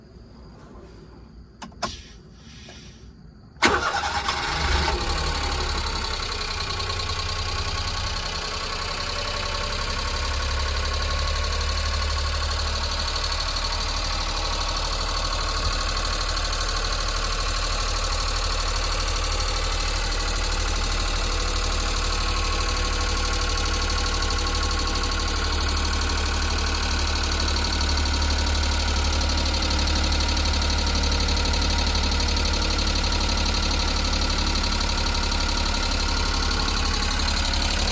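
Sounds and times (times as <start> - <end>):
small truck engine idling: 1.6 - 37.9.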